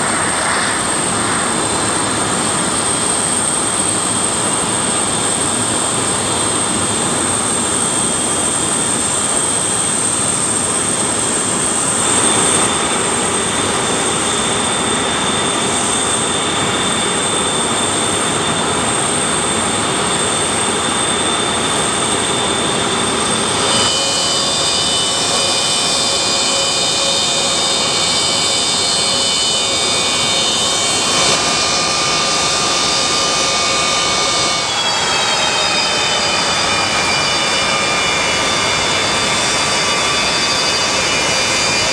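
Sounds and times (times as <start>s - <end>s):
high engine whines: 0.0s - 41.9s
jet engines running: 0.0s - 41.9s.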